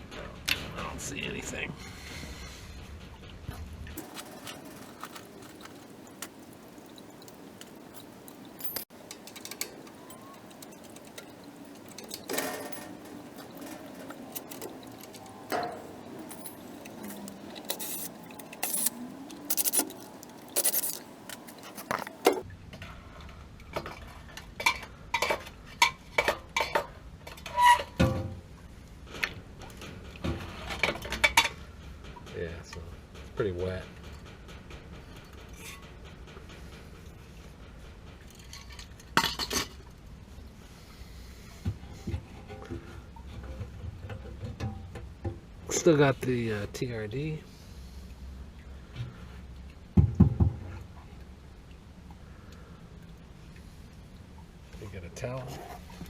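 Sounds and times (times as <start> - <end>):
metal parts and tools clinking: 4.0 - 22.4.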